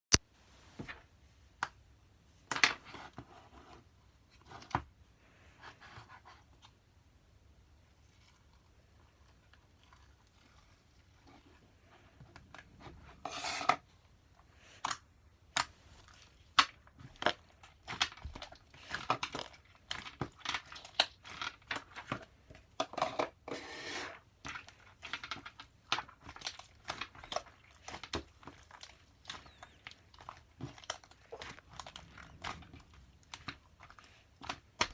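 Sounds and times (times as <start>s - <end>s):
crinkling and clicking handling noises: 8.0s - 23.5s, 24.2s - 34.9s.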